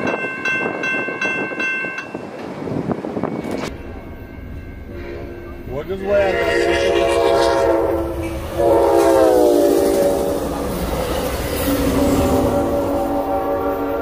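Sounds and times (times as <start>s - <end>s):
train wheels rumbling on rails: 0.0s - 14.0s
train horn: 4.9s - 10.8s, 11.6s - 14.0s.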